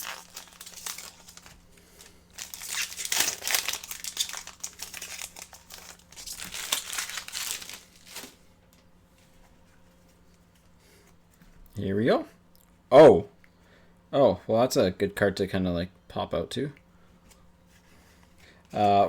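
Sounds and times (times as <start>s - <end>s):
wrapper tearing and crinkling: 0.0s - 8.4s.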